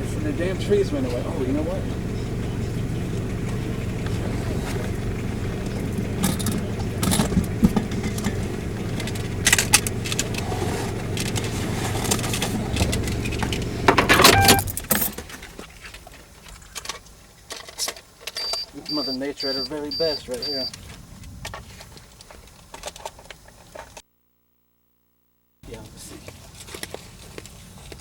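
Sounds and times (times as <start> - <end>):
car engine idling: 0.0 - 21.4
keys jangling: 14.1 - 15.3.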